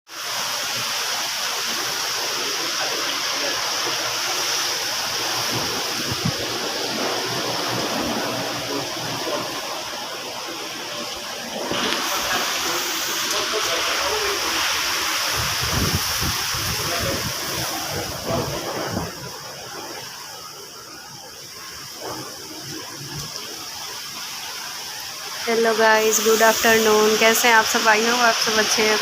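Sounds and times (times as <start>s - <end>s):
heavy rain pouring: 0.1s - 29.0s.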